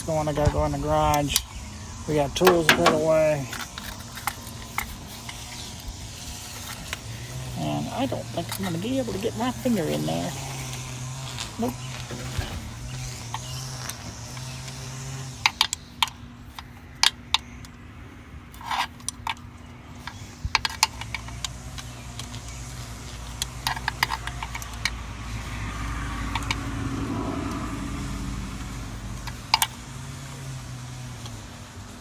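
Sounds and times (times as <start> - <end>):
steady low hum: 0.0 - 32.0
hand tools clinking on metal: 2.1 - 13.6.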